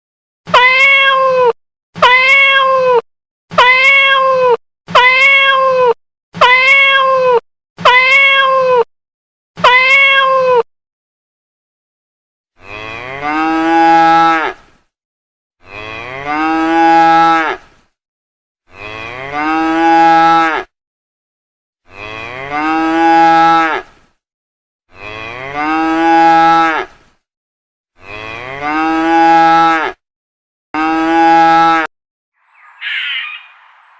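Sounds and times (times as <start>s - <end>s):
cat meowing: 0.5s - 3.0s, 3.6s - 5.8s, 6.4s - 8.9s, 9.6s - 10.6s
cow mooing: 12.6s - 14.6s, 15.6s - 17.6s, 18.7s - 20.7s, 21.9s - 23.8s, 28.0s - 30.0s, 30.8s - 31.9s.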